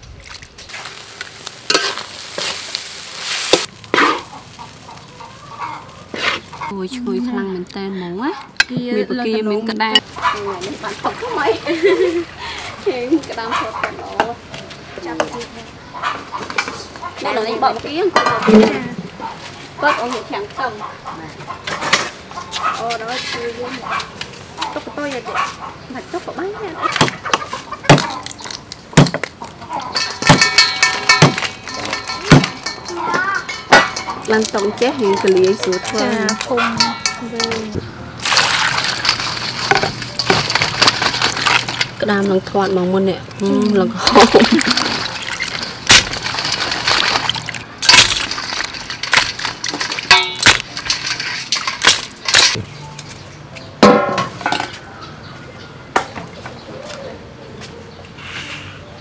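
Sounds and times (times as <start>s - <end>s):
knocks and clinks of hard objects: 27.0s - 42.4s, 43.2s - 54.8s.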